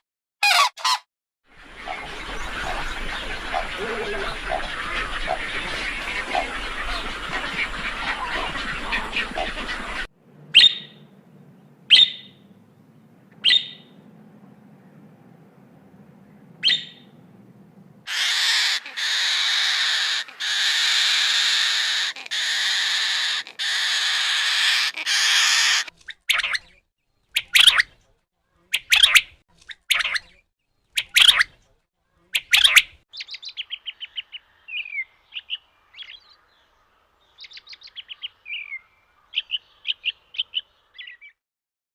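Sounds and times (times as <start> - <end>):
fast twittering bird trills: 10.6 - 11.0, 11.9 - 12.4, 13.4 - 14.0, 16.6 - 17.1, 28.7 - 31.5, 32.3 - 36.3
harsh rasping bird calls: 13.4 - 14.0, 18.1 - 27.9, 28.6 - 31.5, 32.1 - 36.6.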